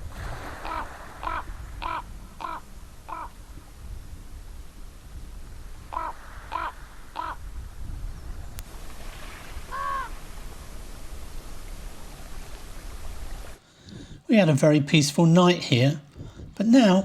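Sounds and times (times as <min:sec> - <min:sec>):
crow cawing: 0:00.6 - 0:03.4, 0:05.9 - 0:07.4, 0:09.7 - 0:10.2.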